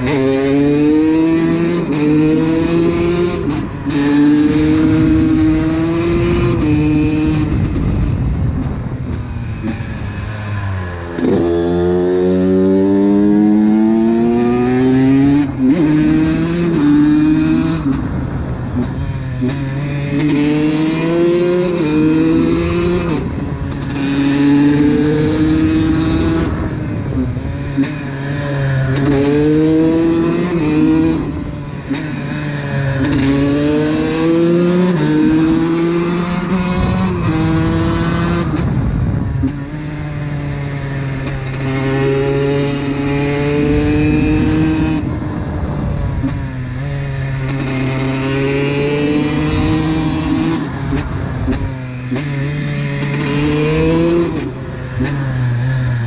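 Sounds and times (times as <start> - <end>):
two-stroke engine revving: 11.0 - 18.1, 20.2 - 38.7.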